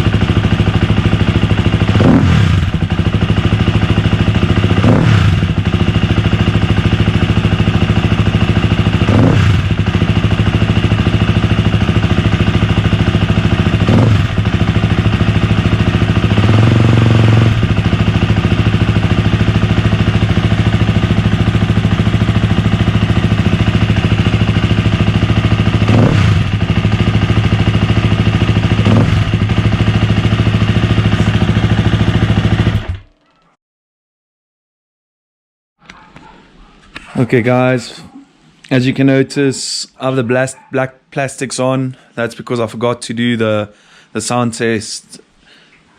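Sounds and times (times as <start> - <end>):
dirt bike engine idling and revving: 0.0 - 33.2.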